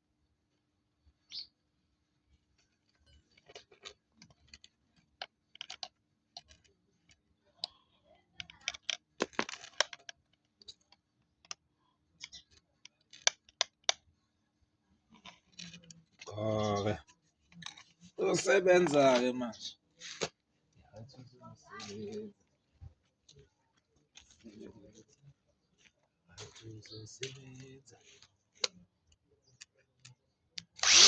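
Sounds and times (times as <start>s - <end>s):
clicks and rattles of a tool: 2.6s - 11.6s, 12.2s - 14.0s.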